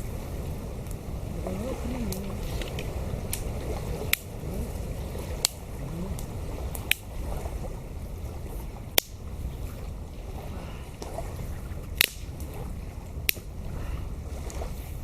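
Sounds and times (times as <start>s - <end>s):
low rumble: 0.0s - 13.2s
campfire wood cracking: 2.1s - 7.2s, 11.9s - 12.6s.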